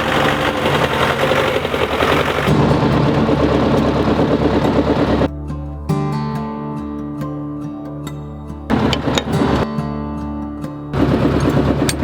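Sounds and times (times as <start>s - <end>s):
tractor engine clattering: 0.0s - 5.3s, 8.7s - 9.7s, 11.0s - 12.0s
acoustic guitar music: 2.1s - 12.0s.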